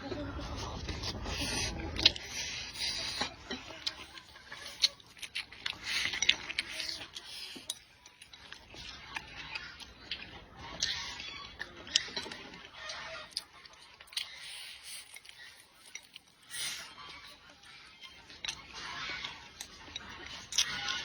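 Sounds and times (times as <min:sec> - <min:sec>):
person chewing and slurping: 0:00.0 - 0:21.0.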